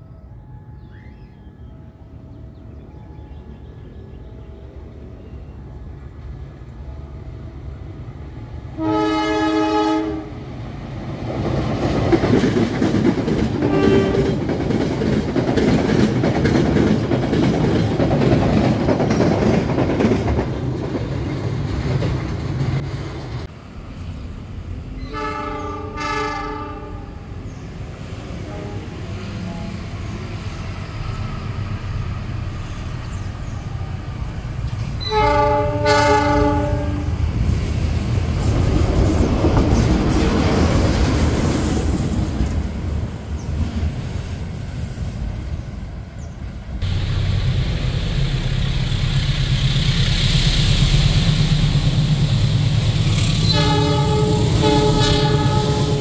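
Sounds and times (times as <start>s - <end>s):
locomotive horn blasts: 8.7s - 10.4s, 13.7s - 14.4s, 25.0s - 27.2s, 28.4s - 29.8s, 35.0s - 37.2s, 53.4s - 56.0s
train wheels clattering on rails: 11.1s - 23.5s, 34.2s - 45.5s.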